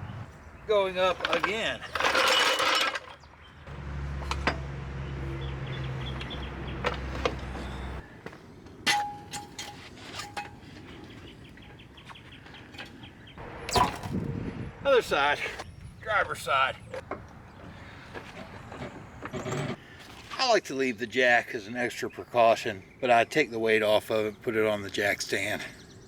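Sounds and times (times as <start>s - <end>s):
metal clinks and clanks: 1.0s - 8.0s, 8.8s - 10.8s.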